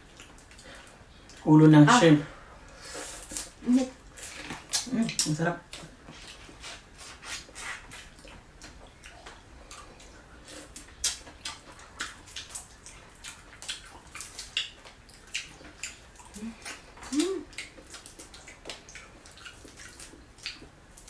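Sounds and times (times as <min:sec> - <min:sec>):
wet eating smacking and sucking: 0:04.2 - 0:20.8.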